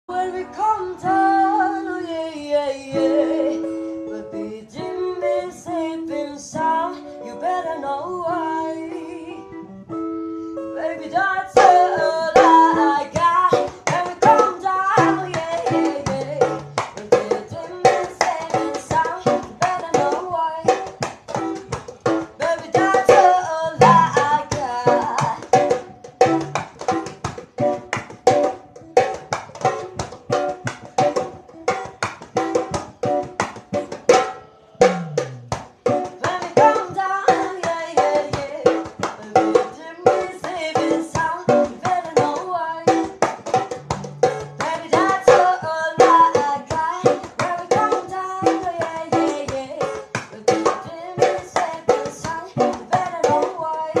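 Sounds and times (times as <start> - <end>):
small band playing: 2.9 - 7.6, 8.8 - 54.0
fast drum and percussion beat: 11.5 - 54.0.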